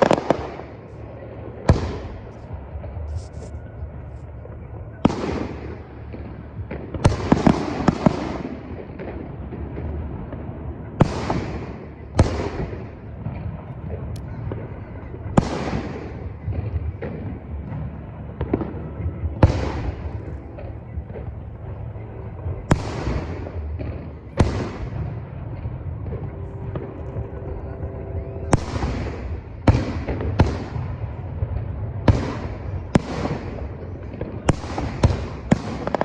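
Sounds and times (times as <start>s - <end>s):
low rumble: 0.0s - 35.8s
fireworks booming: 0.0s - 36.0s
fireworks crackling: 0.0s - 36.0s.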